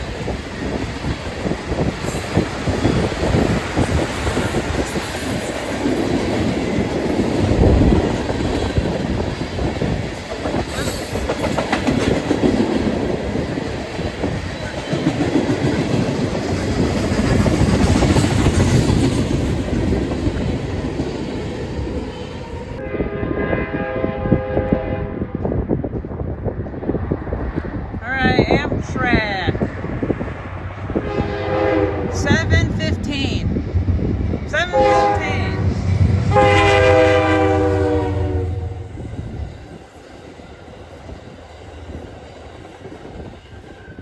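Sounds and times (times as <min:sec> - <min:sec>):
freight train rumbling past: 0:00.0 - 0:44.0
train horn chord: 0:22.8 - 0:25.4, 0:31.0 - 0:32.5, 0:34.7 - 0:38.9.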